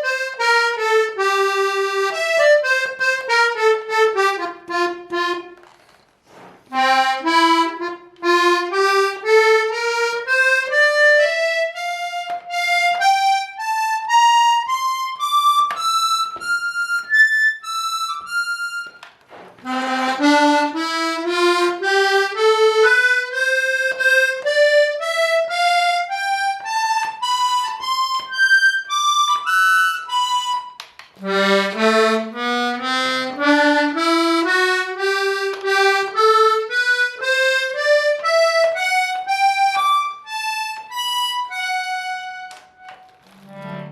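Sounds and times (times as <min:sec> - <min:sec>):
accordion notes in rising runs: 0:19.7 - 0:29.0.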